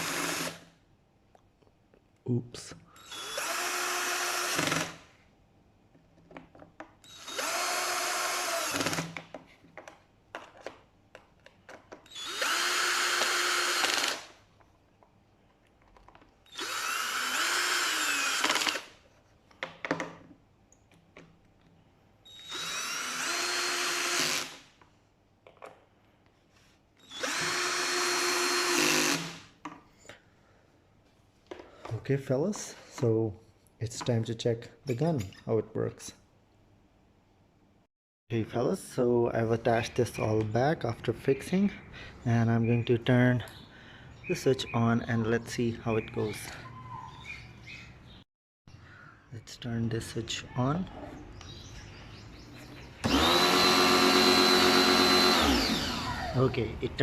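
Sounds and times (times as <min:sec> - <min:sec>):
power drill motor whine: 0:03.0 - 0:05.0, 0:07.0 - 0:09.0, 0:12.1 - 0:14.3, 0:16.5 - 0:18.9, 0:22.3 - 0:24.6, 0:27.0 - 0:29.4, 0:53.0 - 0:56.5.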